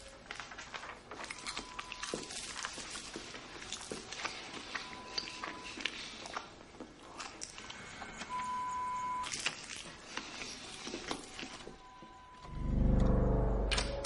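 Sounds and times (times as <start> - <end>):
small clicks and crackles: 0.0 - 8.3
electronic beep: 11.8 - 14.0.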